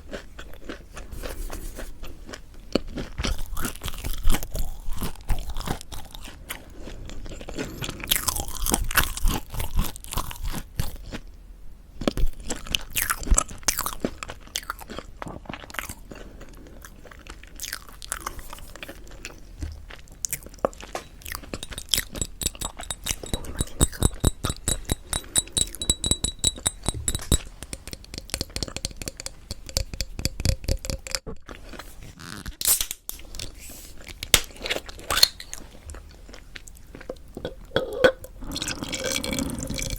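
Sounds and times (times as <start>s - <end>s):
crunchy bread being chewed: 0.0s - 11.4s, 12.0s - 25.4s, 27.3s - 39.9s
wet chewing: 12.4s - 32.5s.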